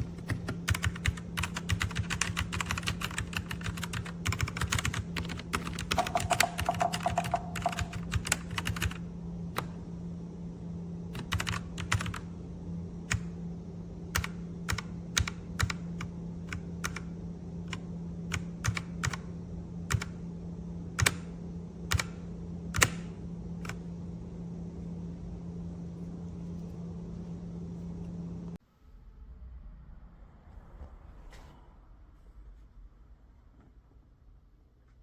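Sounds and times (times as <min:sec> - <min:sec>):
mechanical keyboard typing: 0:00.0 - 0:09.0, 0:11.2 - 0:12.2, 0:14.1 - 0:17.1, 0:17.7 - 0:19.3, 0:19.9 - 0:20.2, 0:21.9 - 0:22.2, 0:22.8 - 0:23.8
steady low hum: 0:00.0 - 0:35.0.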